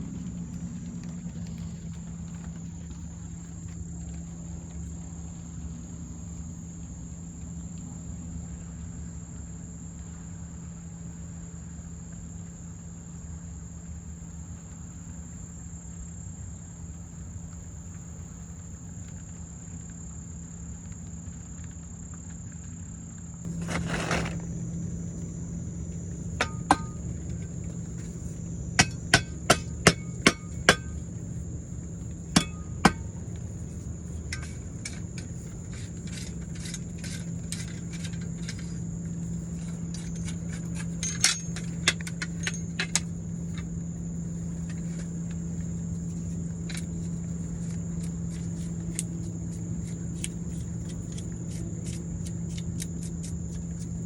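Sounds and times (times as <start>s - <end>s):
low hum: 23.2s - 54.0s.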